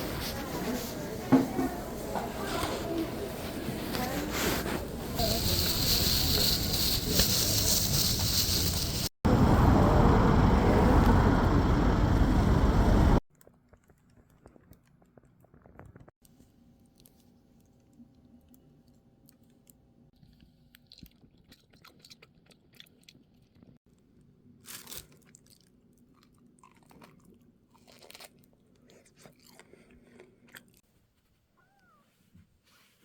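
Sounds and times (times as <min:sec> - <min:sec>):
chewing and crunching food: 0:13.3 - 0:30.9.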